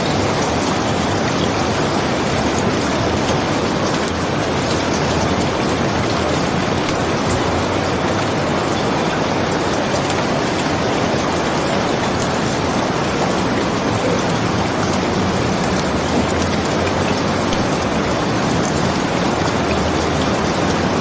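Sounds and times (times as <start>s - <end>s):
heavy rain falling: 0.0s - 21.0s
raindrops ticking: 0.0s - 21.0s.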